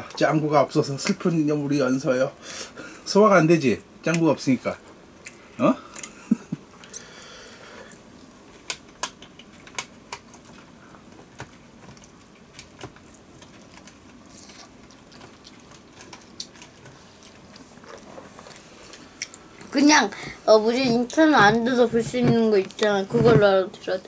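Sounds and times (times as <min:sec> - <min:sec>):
child chewing with wet smacks: 0:07.8 - 0:20.4.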